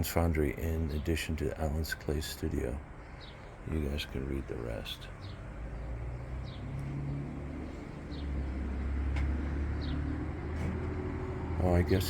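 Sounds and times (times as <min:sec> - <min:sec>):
low motor hum: 0:05.1 - 0:12.0.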